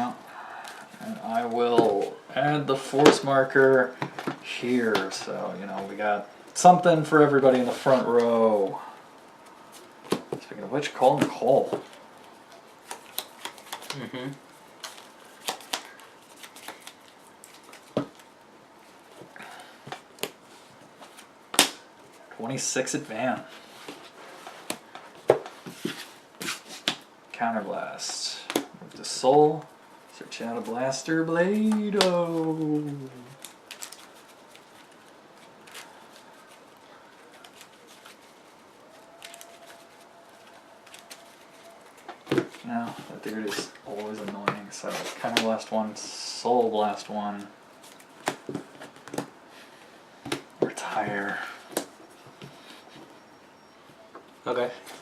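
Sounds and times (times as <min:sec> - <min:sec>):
cards shuffling: 0:09.4 - 0:18.3, 0:22.9 - 0:27.1, 0:28.0 - 0:49.3
faint whine: 0:48.8 - 0:55.0.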